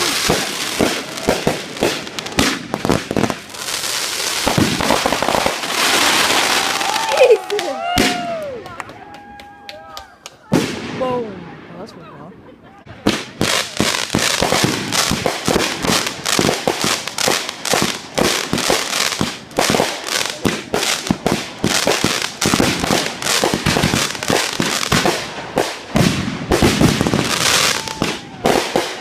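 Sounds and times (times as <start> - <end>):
fireworks banging: 0.0 - 8.5, 12.8 - 29.0.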